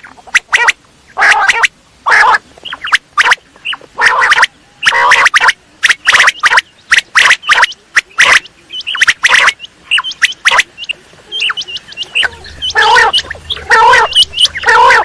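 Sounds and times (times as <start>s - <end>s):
quail calls: 0.0s - 15.0s
high chirps: 2.6s - 15.0s
harsh rasping bird call: 11.3s - 15.0s.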